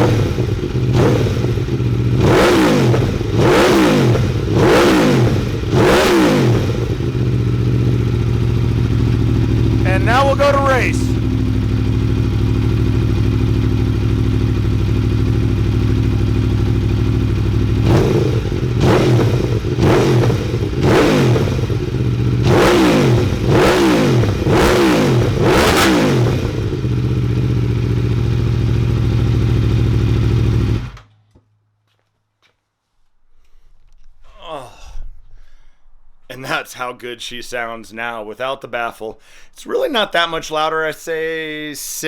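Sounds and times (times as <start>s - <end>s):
motorcycle engine revving: 0.0s - 31.0s
motorcycle engine idling: 0.0s - 31.1s.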